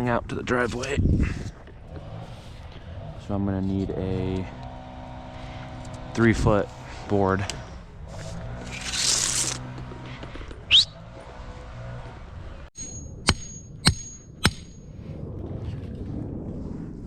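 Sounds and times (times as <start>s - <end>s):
short rising squeak: 8.6s - 9.7s, 10.7s - 11.1s
hammer strikes ringing: 12.8s - 14.9s.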